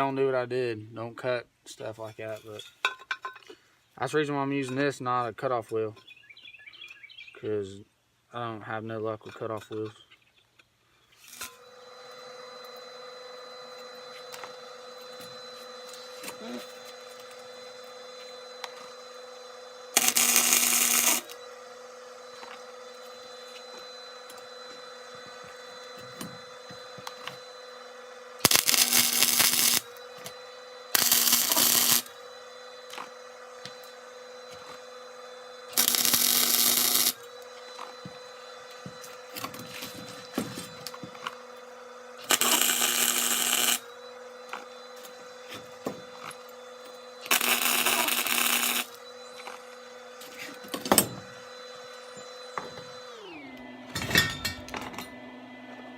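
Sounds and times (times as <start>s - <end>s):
machine humming: 11.4s - 54.0s
harsh metalworking bursts: 15.2s - 21.5s, 28.3s - 33.0s, 35.4s - 37.9s, 42.2s - 44.0s, 47.1s - 49.5s.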